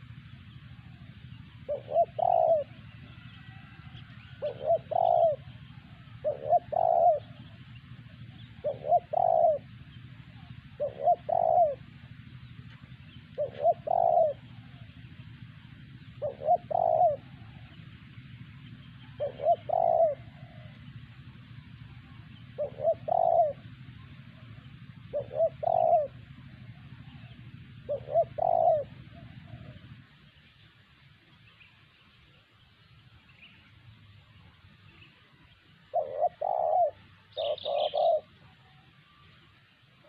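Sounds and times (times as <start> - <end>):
dove cooing: 0.0 - 30.4, 34.4 - 40.0
steady low hum: 0.0 - 40.0.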